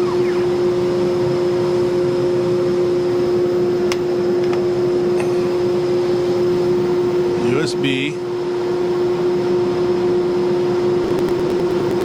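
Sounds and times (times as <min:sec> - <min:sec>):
spindle whirring hum: 0:00.0 - 0:12.0.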